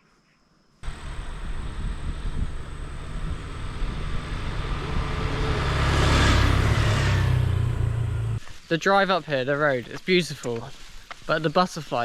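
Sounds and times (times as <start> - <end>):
motorbike engine and road noise: 0.8 - 8.4
wind rushing over microphone: 0.8 - 8.4.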